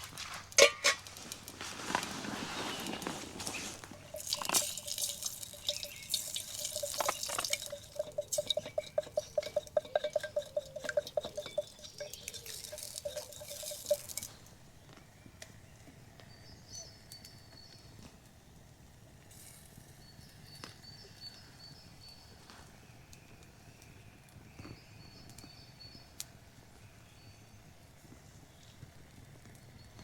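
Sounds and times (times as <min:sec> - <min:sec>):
water pouring and gurgling: 0:03.8 - 0:14.4.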